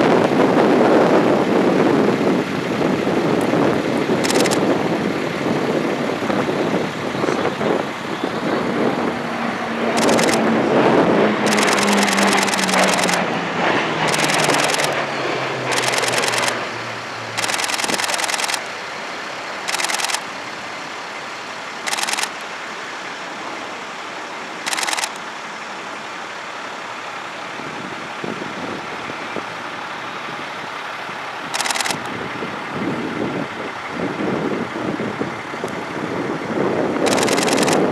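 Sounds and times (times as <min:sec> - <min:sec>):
propeller aircraft flying by: 0:00.0 - 0:37.9
high rattling noise bursts: 0:04.2 - 0:04.8, 0:10.0 - 0:10.4, 0:11.4 - 0:13.3, 0:14.0 - 0:16.6, 0:17.3 - 0:18.7, 0:19.6 - 0:20.3, 0:21.8 - 0:22.4, 0:24.6 - 0:25.2, 0:31.5 - 0:32.1, 0:37.0 - 0:37.9.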